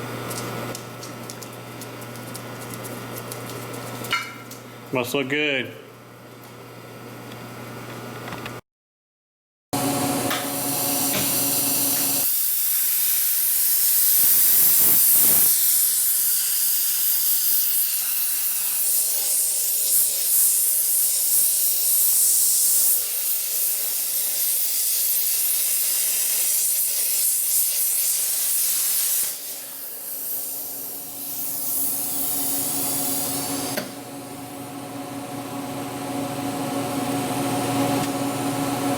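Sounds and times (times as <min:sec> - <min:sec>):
plasma cutter hissing: 0:10.5 - 0:33.9.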